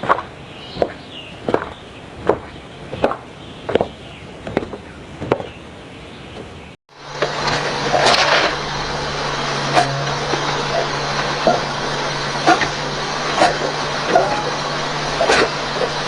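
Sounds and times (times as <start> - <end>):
steady low hum: 6.9 - 16.0.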